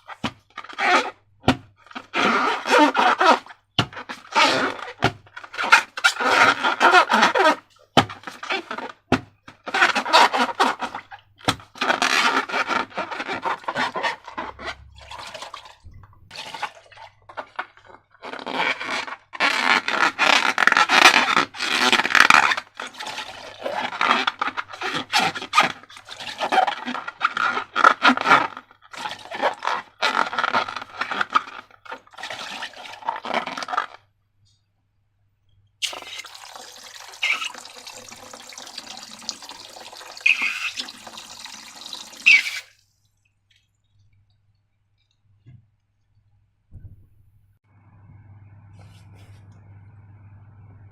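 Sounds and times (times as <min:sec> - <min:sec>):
wet slime squelching: 0:02.0 - 0:34.1, 0:35.8 - 0:45.4
running water: 0:12.4 - 0:17.4, 0:35.8 - 0:44.4.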